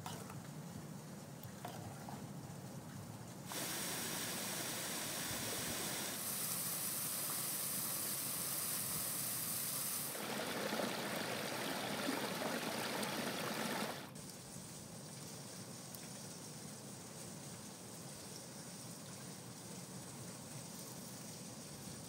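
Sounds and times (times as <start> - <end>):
waterfall rushing: 3.5 - 14.1
water pouring over rocks: 3.5 - 14.3.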